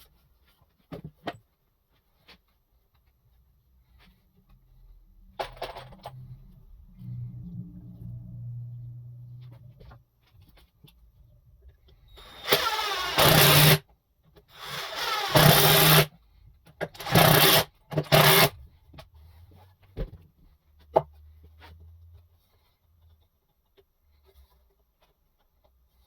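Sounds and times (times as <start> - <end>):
power tool spinning up: 12.2 - 13.8, 14.5 - 16.1, 17.0 - 18.5.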